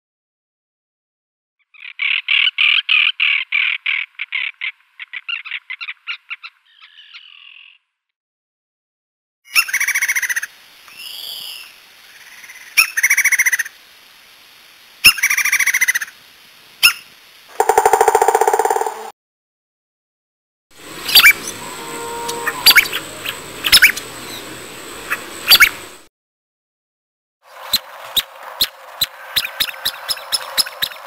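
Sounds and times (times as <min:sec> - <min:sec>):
bird chattering: 0:17.5 - 0:19.1
loud bird calls: 0:17.5 - 0:19.1, 0:20.9 - 0:25.9.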